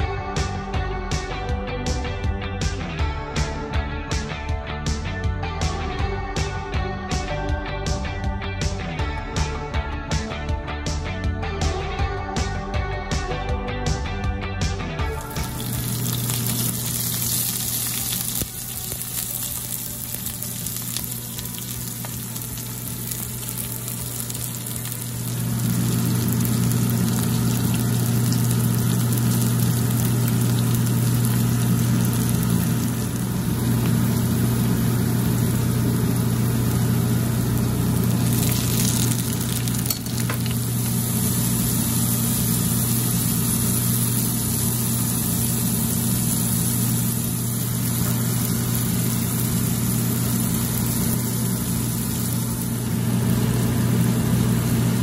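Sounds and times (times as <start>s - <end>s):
steady low hum: 15.1s - 55.0s
vegetables sizzling in a frying pan: 15.1s - 55.0s.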